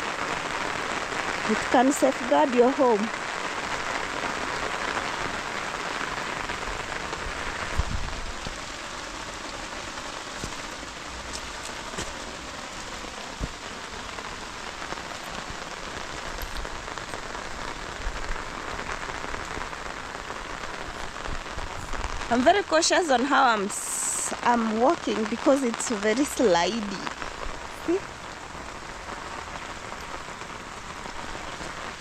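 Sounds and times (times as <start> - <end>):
rain falling: 0.0 - 32.0
water dripping: 7.1 - 17.9.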